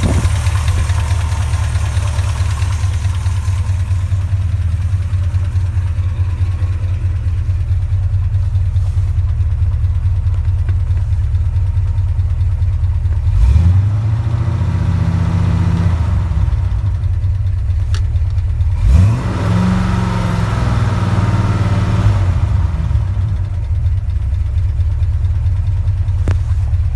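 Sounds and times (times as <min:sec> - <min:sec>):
engine revving: 0:00.0 - 0:09.1, 0:13.2 - 0:17.0, 0:18.8 - 0:23.5
car engine idling with lifter tick: 0:00.0 - 0:26.9.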